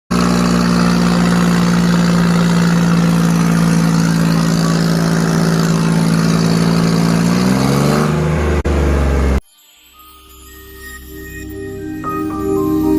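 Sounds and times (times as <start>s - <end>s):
tractor diesel engine running: 0.1s - 9.4s.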